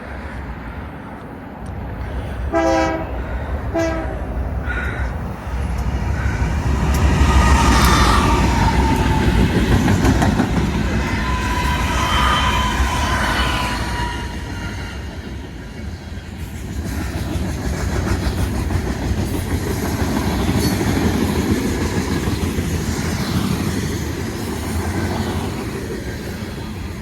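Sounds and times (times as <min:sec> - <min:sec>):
train rumbling past: 0:00.0 - 0:27.0
rail clatter: 0:01.1 - 0:27.0
locomotive air horn blasts: 0:02.5 - 0:04.2.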